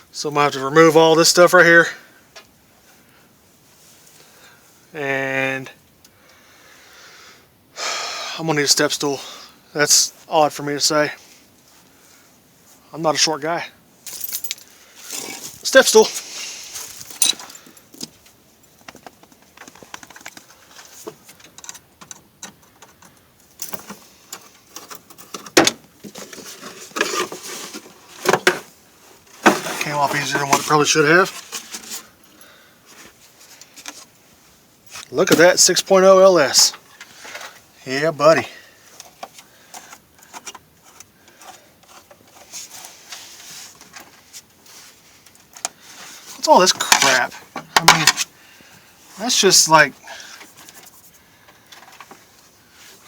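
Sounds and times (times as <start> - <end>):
tools and parts clicking and rattling: 14.0 - 15.5, 16.9 - 28.7
hands handling parts: 14.0 - 32.3, 38.9 - 48.3.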